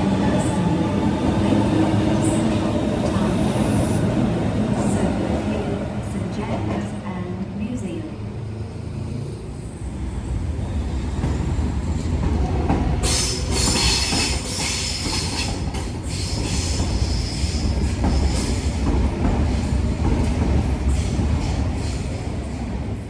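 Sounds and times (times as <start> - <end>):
train rumbling: 0.0 - 23.0
high-pitched wheel-on-rail noise: 8.9 - 23.0.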